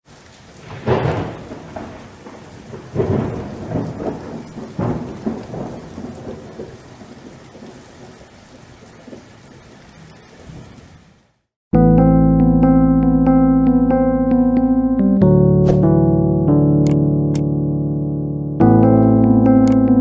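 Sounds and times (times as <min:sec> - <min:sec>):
heavy rain hissing: 0:00.0 - 0:11.5
thunder claps and rumble: 0:00.2 - 0:09.7.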